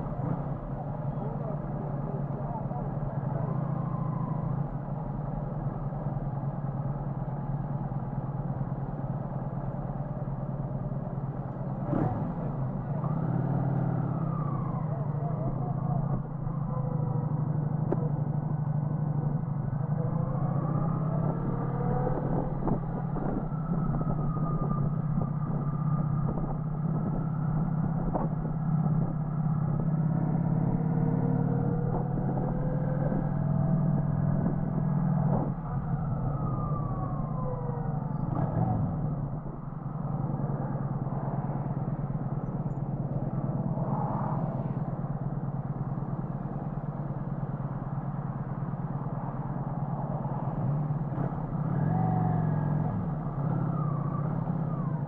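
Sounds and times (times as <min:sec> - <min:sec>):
road and wind noise: 0:00.0 - 0:55.0.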